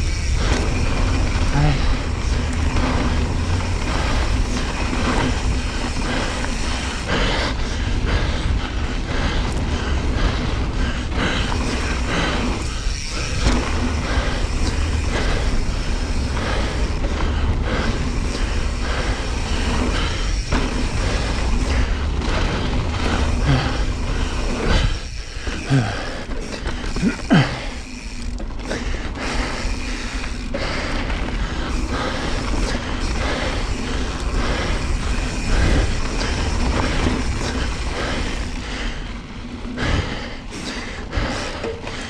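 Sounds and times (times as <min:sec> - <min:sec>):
low rumble: 0:00.0 - 0:25.0
bike rattling and knocking: 0:00.0 - 0:42.0
bike tyres rolling over dirt: 0:00.0 - 0:42.0.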